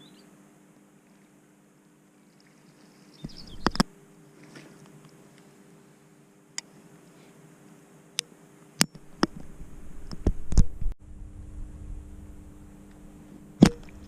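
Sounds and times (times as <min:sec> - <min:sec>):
low steady hum: 0:00.0 - 0:14.0
low rumble: 0:09.5 - 0:14.0.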